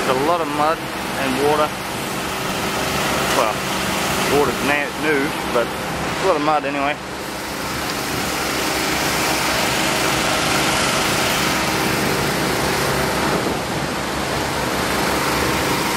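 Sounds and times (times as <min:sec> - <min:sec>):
truck engine running: 0:00.0 - 0:15.9.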